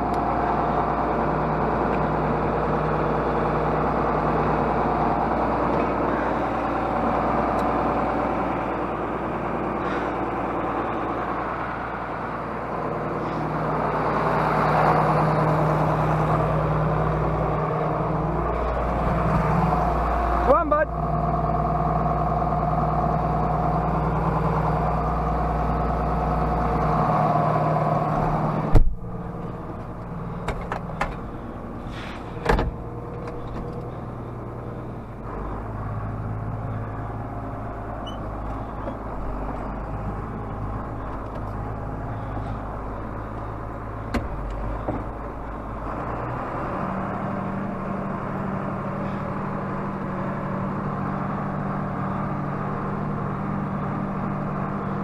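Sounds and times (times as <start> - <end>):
diesel tractor engine running: 0.0 - 55.0
sharp clunk: 28.7 - 29.0.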